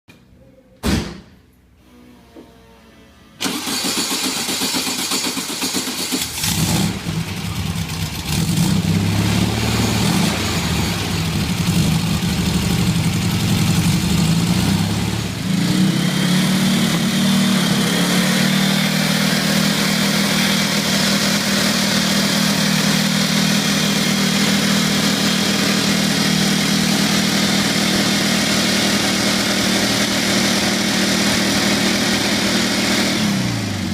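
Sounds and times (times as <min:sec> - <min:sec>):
engine cranking and starting: 0:03.4 - 0:08.7.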